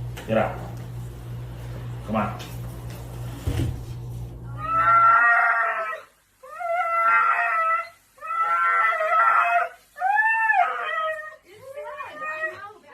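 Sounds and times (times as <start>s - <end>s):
dog howling: 4.6s - 12.7s.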